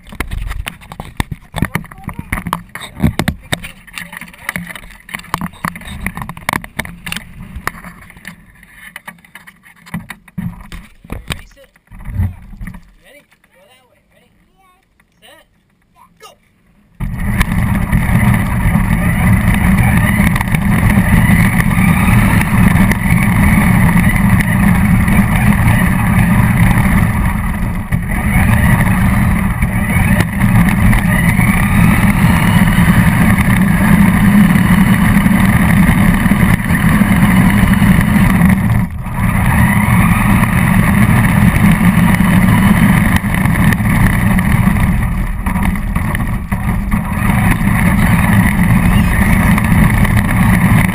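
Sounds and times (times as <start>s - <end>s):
rc car wheels rumbling: 0.0s - 13.6s, 16.8s - 50.9s
motor whine: 17.0s - 50.9s.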